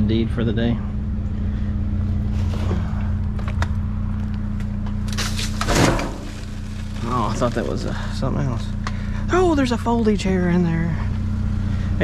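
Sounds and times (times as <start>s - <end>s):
vehicle engine idling: 0.0s - 12.0s
junk clicking in a dumpster: 5.1s - 6.9s.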